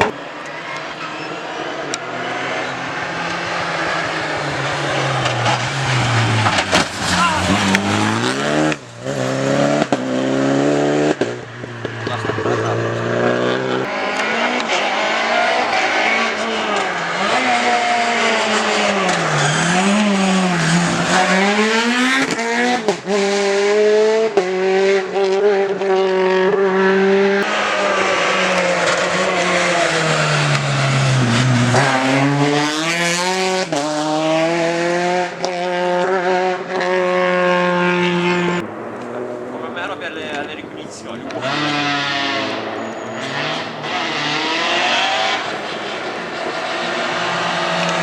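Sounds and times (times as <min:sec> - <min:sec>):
rally car engine revving: 0:00.0 - 0:48.0
tyre squeal: 0:00.4 - 0:03.4, 0:41.4 - 0:44.2.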